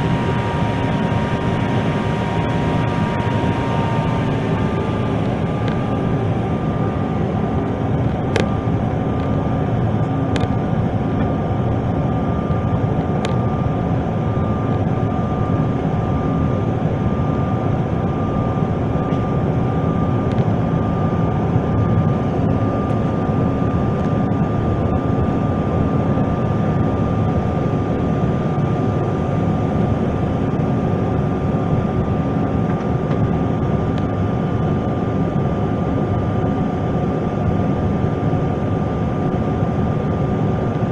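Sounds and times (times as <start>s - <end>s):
thin steady whine: 0.0s - 21.1s
jet engines and airflow drone: 0.0s - 40.9s.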